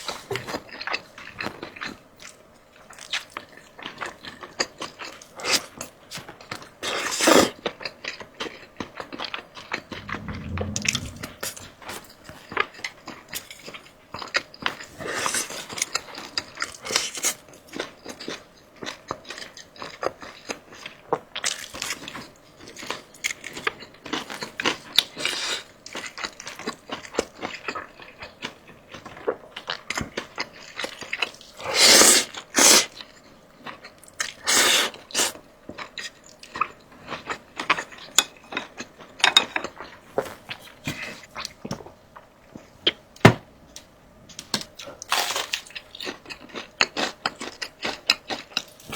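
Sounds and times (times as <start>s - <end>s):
person crunching and chewing food: 45.1s - 48.6s.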